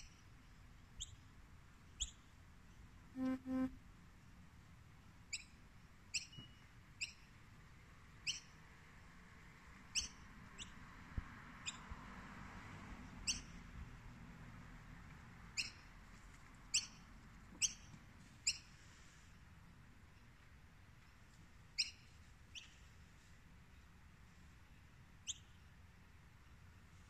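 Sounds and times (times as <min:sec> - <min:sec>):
faint background noise: 0:00.0 - 0:27.0
bird chirping: 0:02.0 - 0:02.3, 0:08.2 - 0:08.6, 0:09.9 - 0:10.7, 0:13.2 - 0:13.6, 0:15.6 - 0:15.9, 0:16.7 - 0:17.0, 0:21.8 - 0:22.8, 0:25.2 - 0:25.6.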